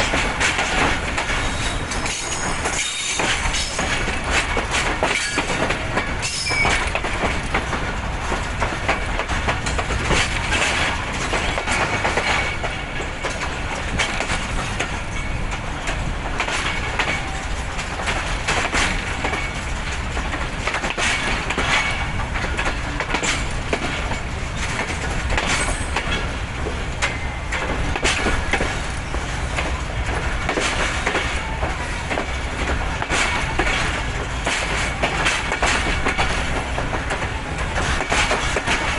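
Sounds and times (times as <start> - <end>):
train coaches rumbling on rails: 0.0 - 38.9
wheels clicking over rail joints: 0.0 - 38.9
faint wheel squeal: 6.2 - 6.8.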